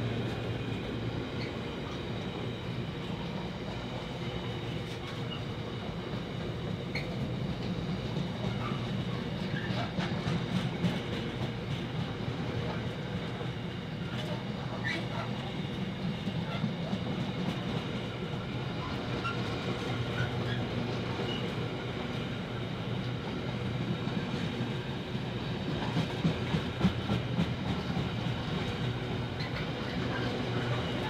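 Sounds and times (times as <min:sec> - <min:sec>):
train low drone: 0:00.0 - 0:31.0.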